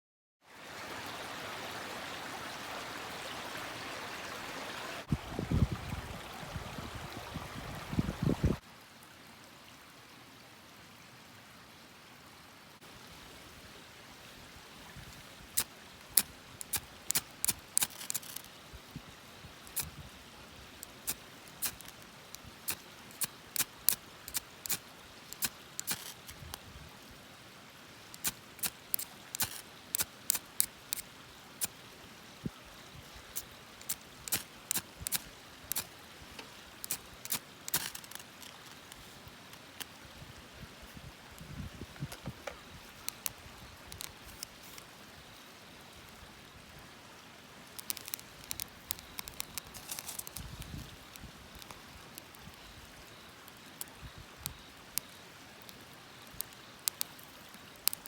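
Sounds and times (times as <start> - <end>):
running water rushing: 0.4 - 58.0
campfire crackling and popping: 15.3 - 18.6, 19.5 - 20.0, 20.7 - 26.6, 28.0 - 31.8, 33.3 - 40.0, 42.4 - 44.9, 47.6 - 58.0.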